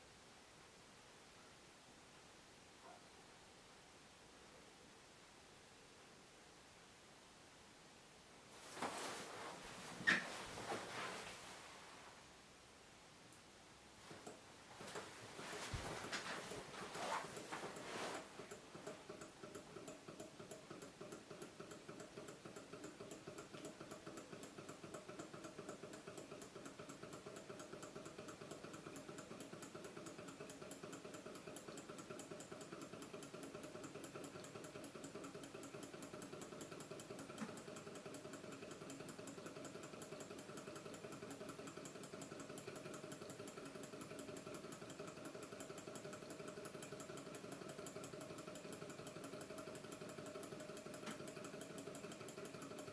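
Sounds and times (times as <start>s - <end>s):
small engine clattering: 14.2s - 52.9s.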